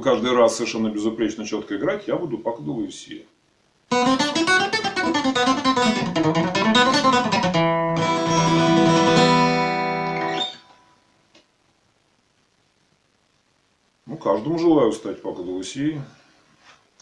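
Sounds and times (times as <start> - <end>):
acoustic guitar playing: 3.9 - 11.0.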